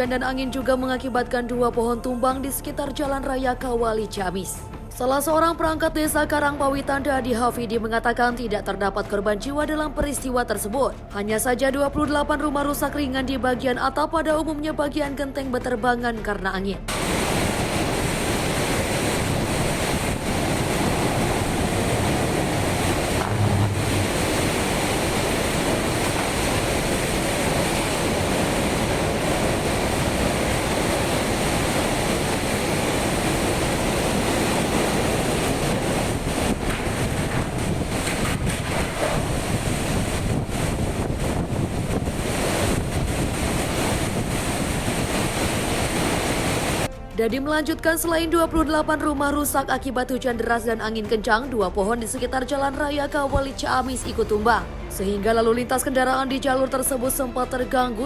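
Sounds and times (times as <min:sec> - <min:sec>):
heavy rain: 0:16.9 - 0:46.9
wind buffeting microphone: 0:16.9 - 0:46.9
low rumble: 0:19.4 - 0:33.9.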